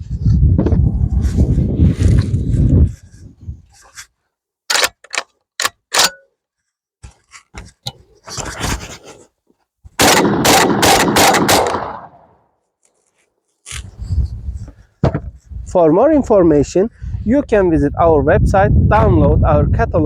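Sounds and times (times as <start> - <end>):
gunshot echoes: 10.0 - 12.3
shotgun shots: 10.0 - 12.3.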